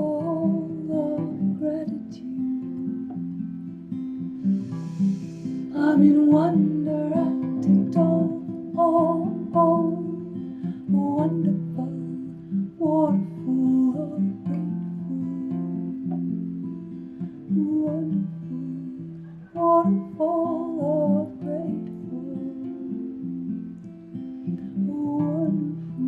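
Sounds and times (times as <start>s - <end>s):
acoustic guitar playing: 0.0s - 26.0s
person singing wordless phrases: 4.6s - 10.2s.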